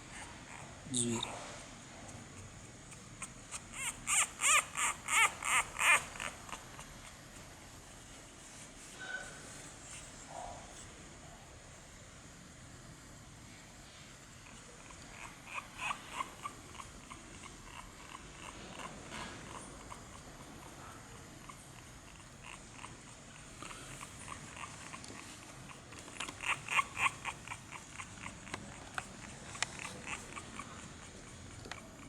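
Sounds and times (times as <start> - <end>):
dogs yipping: 2.9 - 6.9, 14.8 - 18.9, 21.4 - 32.0.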